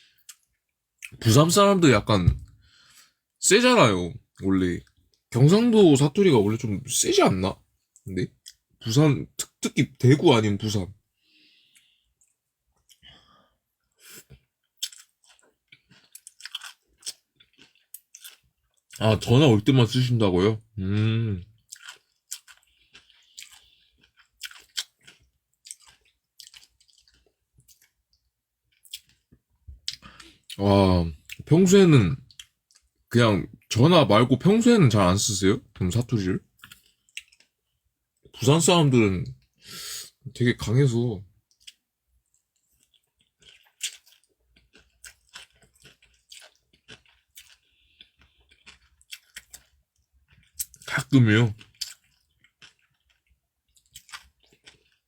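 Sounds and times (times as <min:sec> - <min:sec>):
person chewing food: 0:11.2 - 0:19.0, 0:21.4 - 0:30.6, 0:36.6 - 0:38.4, 0:41.5 - 0:50.9, 0:51.6 - 0:55.0.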